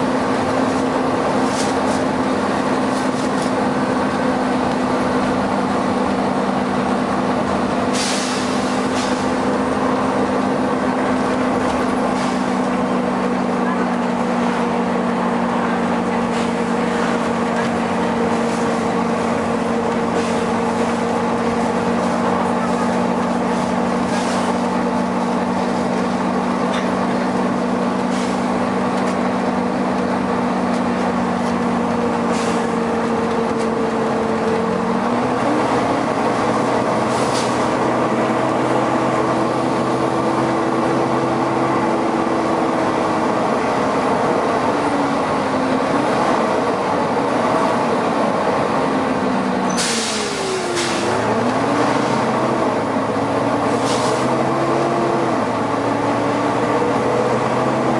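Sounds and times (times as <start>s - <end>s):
bus cooling fan whine: 0.0s - 57.9s
air hiss burst: 7.9s - 9.2s, 49.8s - 51.0s.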